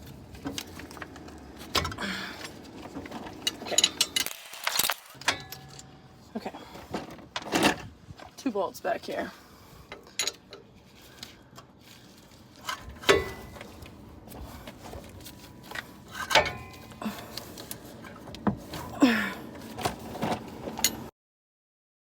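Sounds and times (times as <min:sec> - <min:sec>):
wrench clanking on metal: 0:03.1 - 0:05.9, 0:09.9 - 0:10.7, 0:12.7 - 0:13.9, 0:16.1 - 0:17.2.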